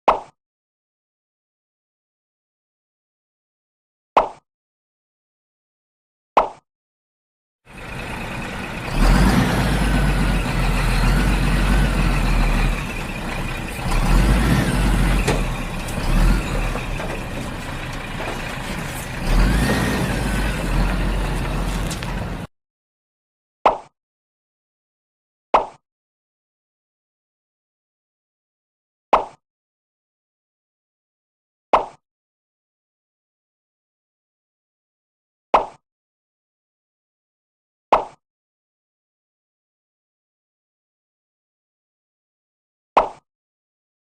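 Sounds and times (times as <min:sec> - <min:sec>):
truck engine rumbling: 0:07.7 - 0:22.5.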